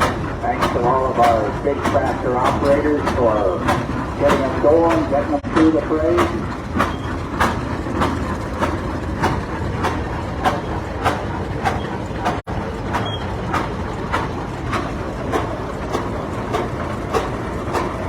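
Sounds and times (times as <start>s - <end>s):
tractor engine running slowly: 0.0s - 18.0s.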